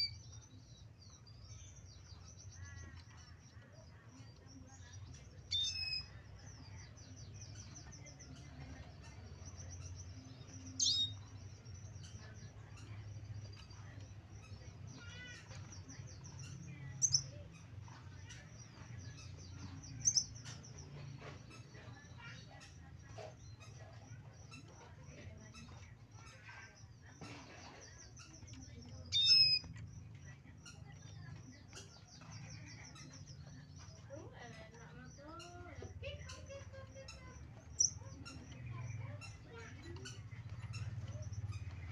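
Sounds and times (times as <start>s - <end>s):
bird twittering: 0.0s - 41.9s
sharp bird chirps: 29.1s - 29.9s.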